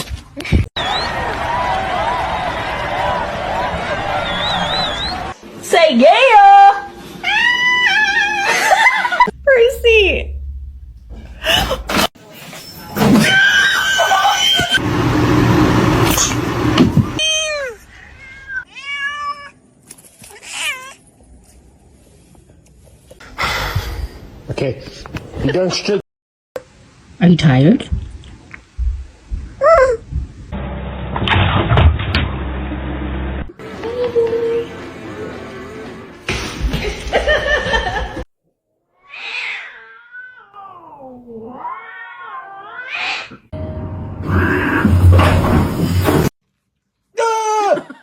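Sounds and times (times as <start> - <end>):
cat meowing: 17.2 - 19.6, 39.0 - 43.4.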